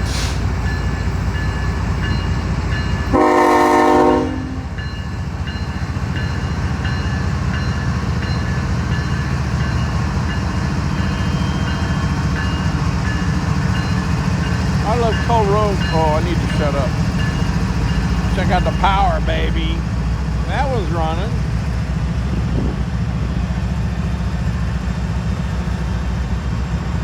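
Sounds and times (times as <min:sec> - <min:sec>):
locomotive engine rumble: 0:00.0 - 0:27.0
locomotive air horn blast: 0:03.1 - 0:04.8.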